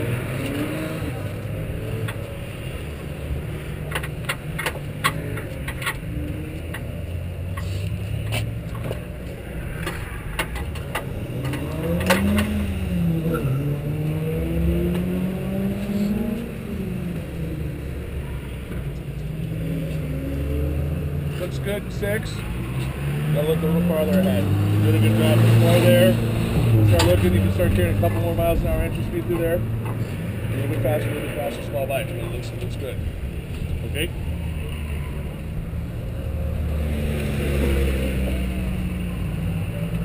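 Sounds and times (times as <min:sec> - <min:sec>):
engine revving: 0:00.0 - 0:18.6, 0:19.2 - 0:40.0
sharp clicks and clatters: 0:03.8 - 0:06.9, 0:09.8 - 0:12.6.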